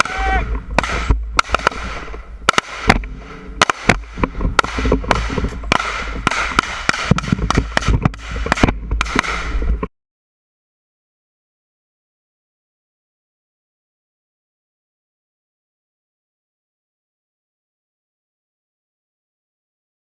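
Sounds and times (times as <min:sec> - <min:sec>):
rifle gunfire with echo: 0:00.0 - 0:09.6.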